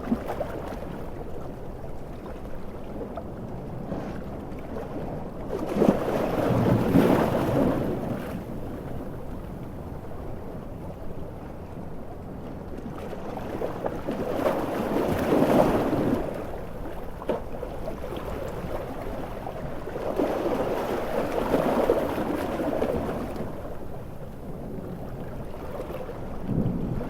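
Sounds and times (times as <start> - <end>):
sea waves surging: 5.6 - 27.0.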